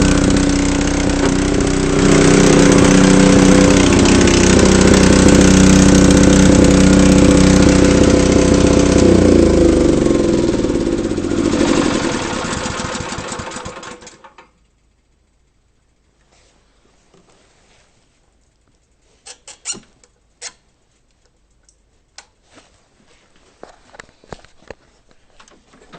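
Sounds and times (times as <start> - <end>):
engine spinning down: 0.0 - 14.4
snowblower engine running: 0.0 - 14.4.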